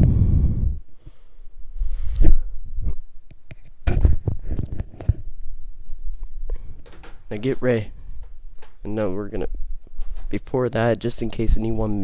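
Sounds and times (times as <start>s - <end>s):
plastic parts knocking and clicking: 6.1s - 8.9s, 9.8s - 10.4s.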